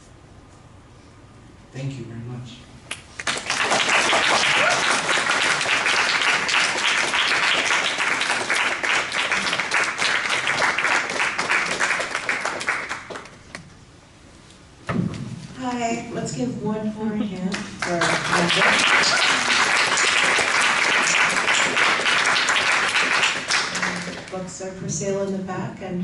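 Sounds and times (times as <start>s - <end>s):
audience applauding: 3.2s - 13.4s, 17.5s - 24.4s.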